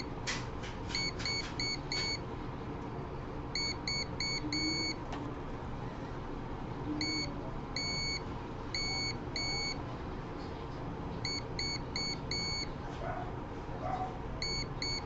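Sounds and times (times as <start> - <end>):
multimeter continuity beeps: 1.0 - 2.2, 3.5 - 5.0, 7.0 - 9.8, 11.2 - 12.7, 14.4 - 15.0.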